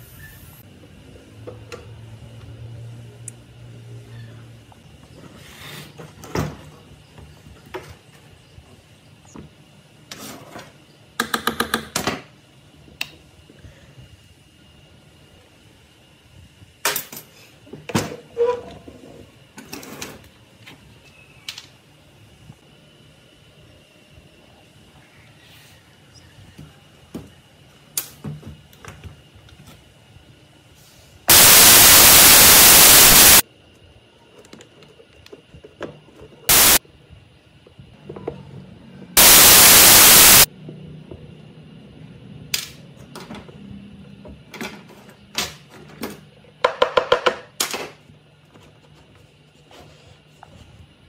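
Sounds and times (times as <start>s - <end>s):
loud hissing bursts: 31.3s - 33.4s, 36.5s - 36.8s, 39.2s - 40.5s.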